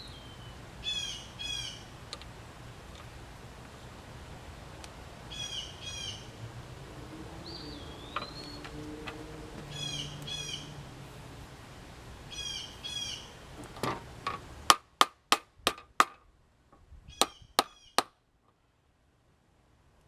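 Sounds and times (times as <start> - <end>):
birds chirping: 0.0 - 14.8, 17.0 - 18.1
sharp taps: 13.9 - 16.2, 17.2 - 18.2.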